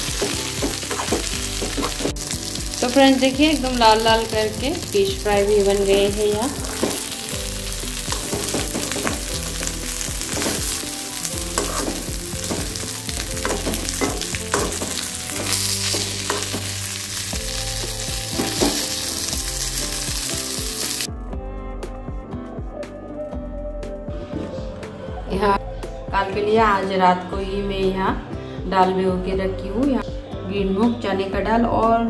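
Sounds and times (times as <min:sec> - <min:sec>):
fish sizzling in oil: 0:00.0 - 0:21.1
spoon scraping pan: 0:11.5 - 0:16.8.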